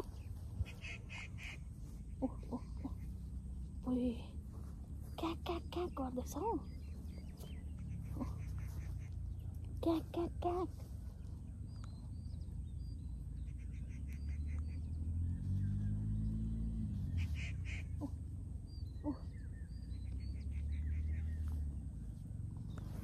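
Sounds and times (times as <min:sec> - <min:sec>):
low rumble: 0:00.0 - 0:09.9
small birds chirping: 0:00.0 - 0:23.0.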